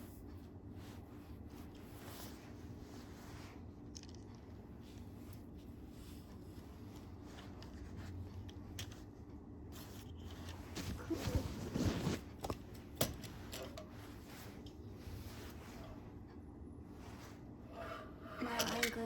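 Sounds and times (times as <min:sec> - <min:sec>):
packaging rustling: 0:10.0 - 0:13.9.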